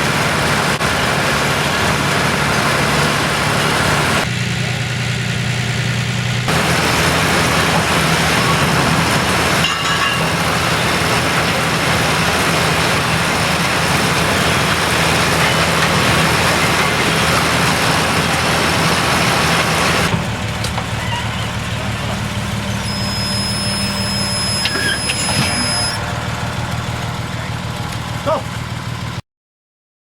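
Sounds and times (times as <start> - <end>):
tractor engine humming: 0.0 - 29.2
baler machine working: 6.5 - 28.7.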